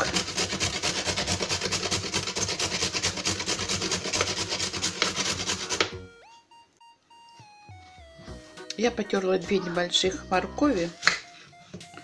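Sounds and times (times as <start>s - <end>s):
carrot rasping on metal grater: 0.0s - 5.9s.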